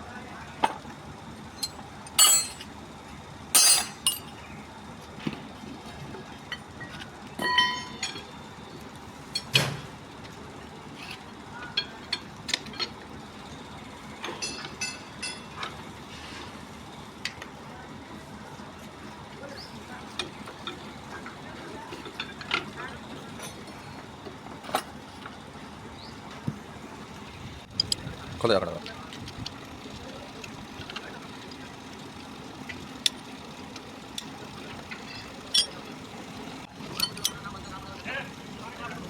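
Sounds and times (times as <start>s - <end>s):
metal tools clinking and knocking: 1.6s - 2.7s, 3.6s - 4.4s, 6.5s - 8.3s, 14.2s - 15.8s, 34.2s - 35.9s, 36.8s - 37.7s.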